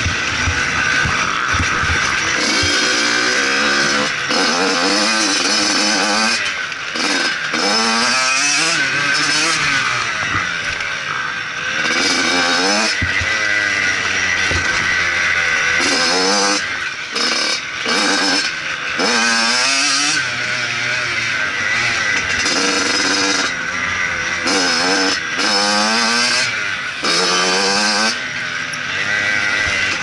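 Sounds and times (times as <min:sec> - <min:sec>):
steady rushing noise: 0:00.0 - 0:04.4
motocross bike engine revving: 0:00.0 - 0:30.0.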